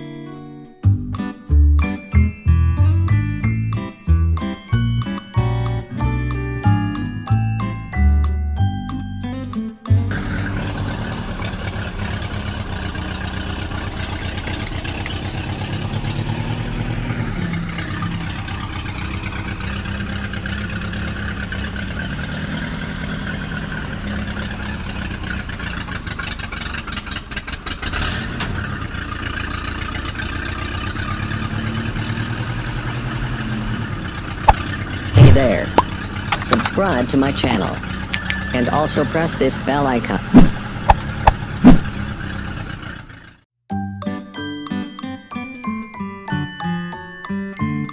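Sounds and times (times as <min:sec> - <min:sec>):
engine puttering: 0:09.5 - 0:43.4.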